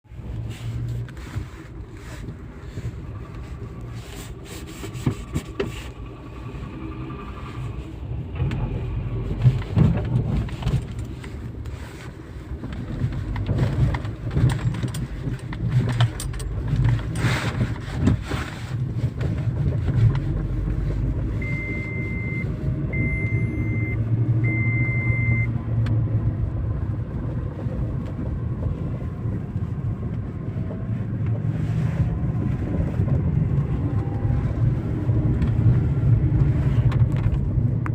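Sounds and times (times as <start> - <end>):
car engine and road rumble: 0.0 - 37.9.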